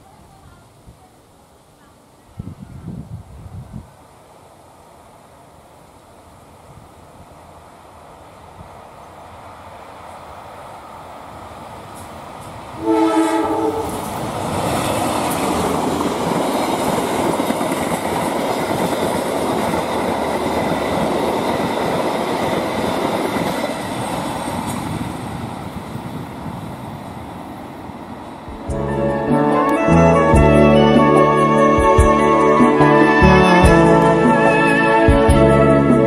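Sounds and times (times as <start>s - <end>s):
train wheels rumbling and clattering: 11.5s - 12.8s, 13.4s - 28.8s
train horn blast: 12.8s - 14.1s, 28.7s - 36.0s.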